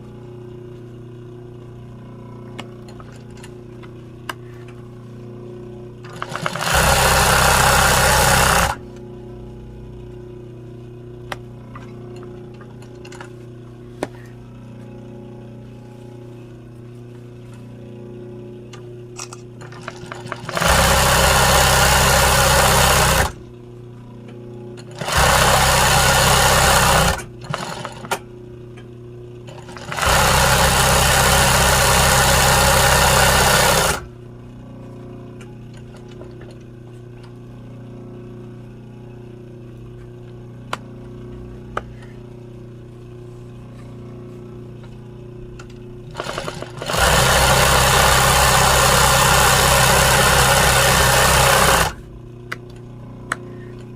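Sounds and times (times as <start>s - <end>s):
low motor hum: 0.0s - 53.9s
sewing machine stitching: 6.0s - 8.8s, 19.6s - 23.4s, 24.8s - 28.2s, 29.5s - 34.1s, 46.1s - 52.0s.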